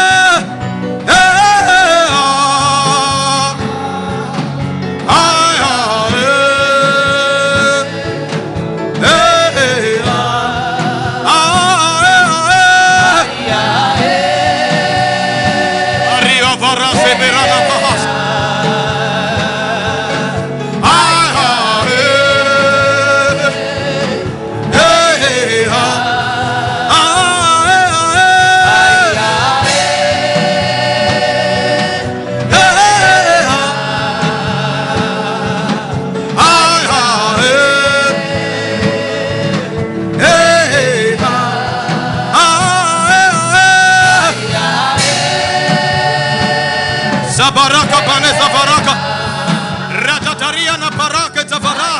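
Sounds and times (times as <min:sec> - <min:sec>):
gospel worship singing: 0:00.0 - 0:51.9
steady musical accompaniment: 0:00.0 - 0:51.9.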